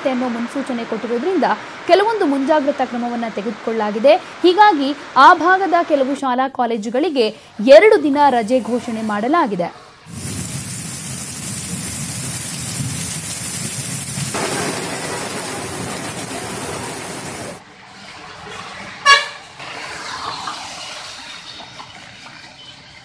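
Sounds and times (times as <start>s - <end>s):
street noise: 0.0s - 23.0s
low traffic rumble: 7.4s - 23.0s
heavy rain: 10.0s - 18.5s
car horn toot: 19.0s - 19.4s.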